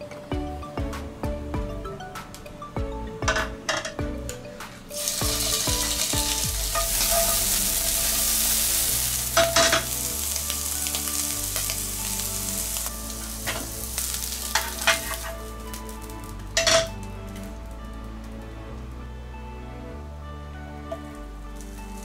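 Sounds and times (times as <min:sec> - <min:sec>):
prawns sizzling in hot oil: 0:04.9 - 0:17.6
metal tongs clicking on pan: 0:14.5 - 0:15.4.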